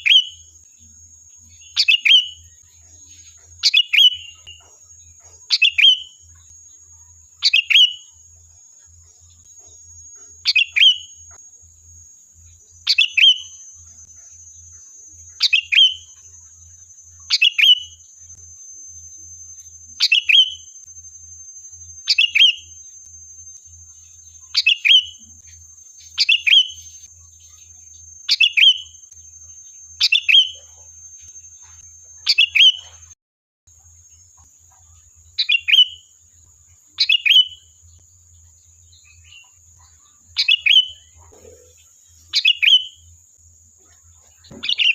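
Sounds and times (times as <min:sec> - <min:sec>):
bird calling: 0:01.5 - 0:06.6, 0:09.3 - 0:11.4, 0:12.6 - 0:33.2, 0:39.0 - 0:43.1, 0:43.8 - 0:44.9.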